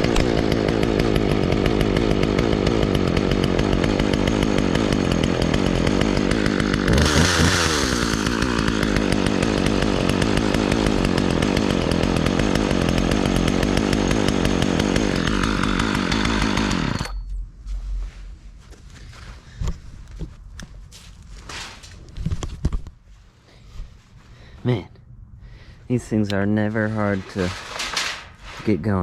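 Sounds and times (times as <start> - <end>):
chainsaw running and revving: 0.0 - 17.2.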